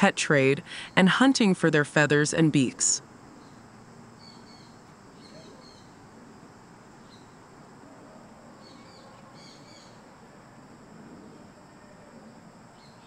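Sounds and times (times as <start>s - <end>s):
small birds chirping: 3.3s - 6.0s, 7.0s - 7.4s, 8.6s - 10.0s.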